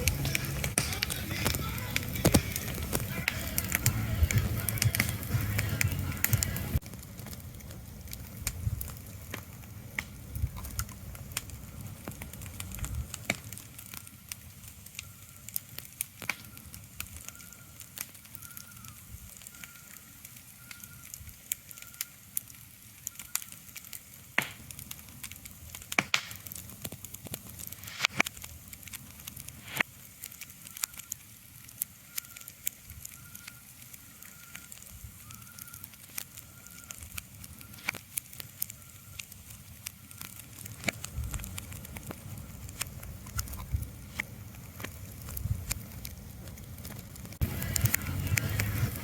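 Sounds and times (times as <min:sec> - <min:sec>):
sharp crackles and clicks: 0:00.0 - 0:49.0
low rumble: 0:45.2 - 0:49.0.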